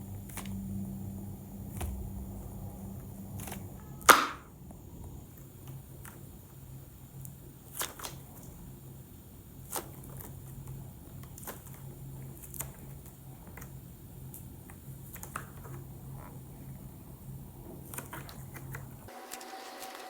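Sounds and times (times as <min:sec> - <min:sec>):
low hum: 0:00.0 - 0:05.3.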